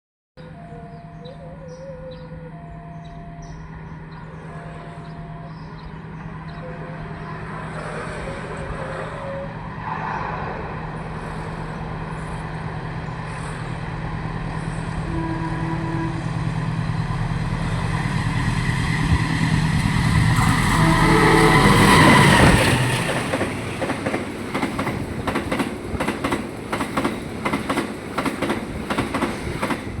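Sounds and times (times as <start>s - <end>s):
diesel locomotive engine drone: 0.4s - 30.0s
train wheels clacking on rails: 17.5s - 30.0s.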